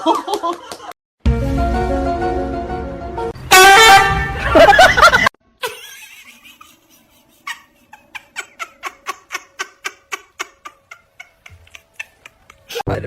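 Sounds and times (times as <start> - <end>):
soft rhythmic laughter: 0.0 - 1.0, 4.4 - 12.9.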